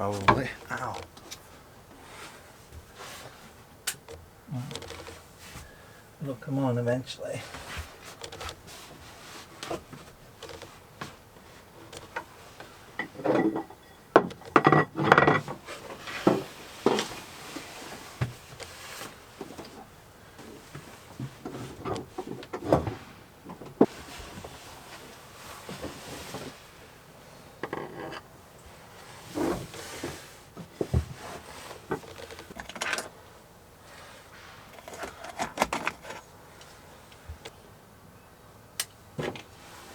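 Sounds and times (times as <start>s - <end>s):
knocks and thumps of tools: 0.1s - 1.4s, 13.0s - 15.6s.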